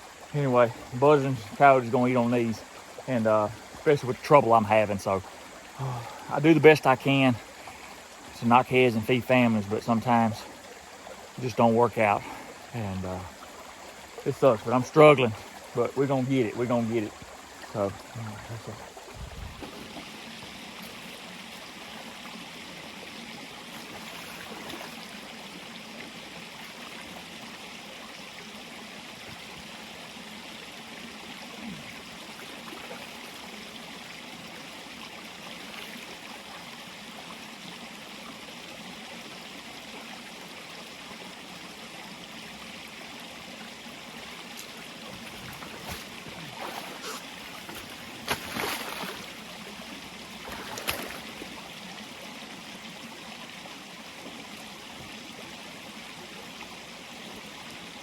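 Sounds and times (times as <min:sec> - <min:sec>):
rushing hiss of water: 0:00.0 - 0:13.3, 0:44.1 - 0:49.4.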